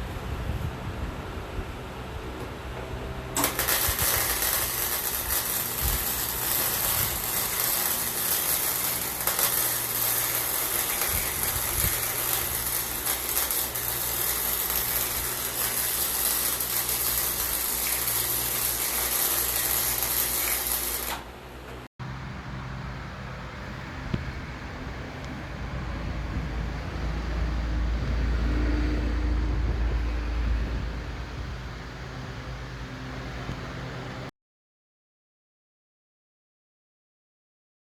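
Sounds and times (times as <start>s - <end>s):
machine hissing: 3.4s - 21.4s.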